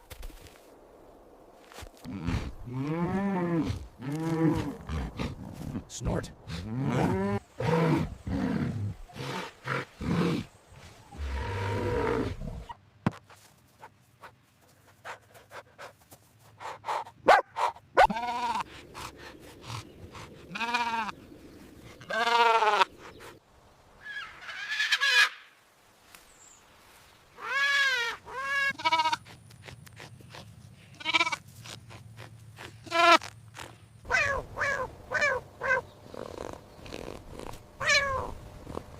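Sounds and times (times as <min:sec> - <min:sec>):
goat or sheep bleating: 0:18.0 - 0:18.6, 0:20.5 - 0:21.1, 0:22.0 - 0:22.9, 0:28.3 - 0:29.4, 0:30.9 - 0:31.5.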